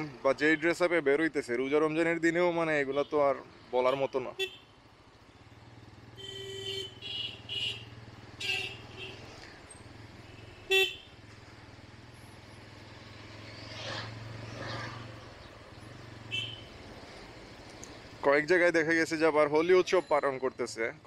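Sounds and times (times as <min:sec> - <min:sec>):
vehicle horns honking: 0:04.4 - 0:04.8, 0:06.2 - 0:09.3, 0:10.2 - 0:11.2, 0:16.2 - 0:16.8
motorcycle engine humming: 0:04.4 - 0:18.5
vehicle passing: 0:11.3 - 0:18.2.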